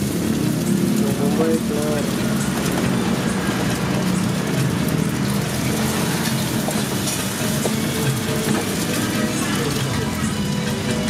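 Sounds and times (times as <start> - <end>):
food sizzling in a wok: 0.0 - 11.0
wooden spatula scraping a wok: 2.0 - 10.3.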